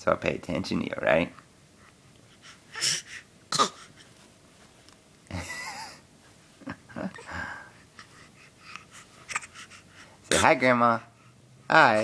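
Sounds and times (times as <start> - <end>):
baby breathy wheezy noises: 2.3 - 4.2, 7.2 - 10.3
baby fake-coughing: 2.8 - 3.9.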